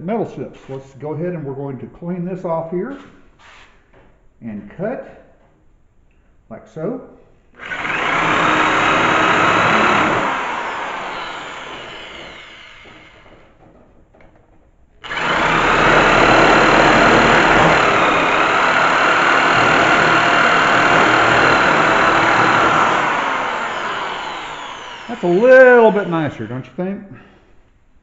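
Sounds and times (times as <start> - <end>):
power tool running: 7.6 - 13.4, 15.0 - 26.7.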